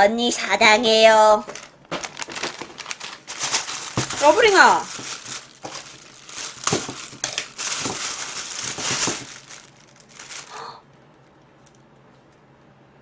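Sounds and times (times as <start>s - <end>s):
gift wrapping crinkling: 1.4s - 10.8s.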